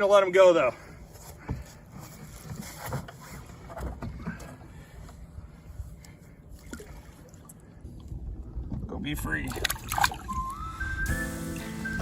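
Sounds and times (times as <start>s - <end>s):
water splashing beside boat: 1.4s - 11.0s
wind rumble on microphone: 7.8s - 11.1s.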